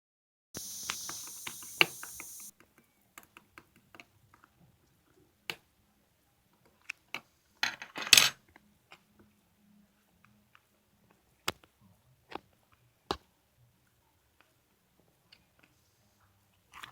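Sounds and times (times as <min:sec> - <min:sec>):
steady hiss: 0:00.6 - 0:02.5.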